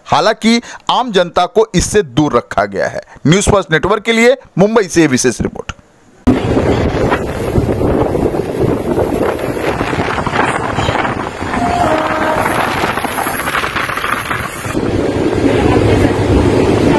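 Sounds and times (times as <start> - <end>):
train wheels rumbling on rails: 6.3 - 16.9
wind buffeting microphone: 6.3 - 16.9.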